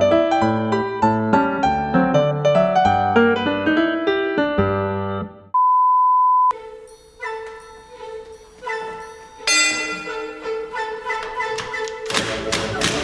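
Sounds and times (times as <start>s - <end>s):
piano-like notes: 6.6s - 13.0s
chiming bell-like music: 9.4s - 11.0s.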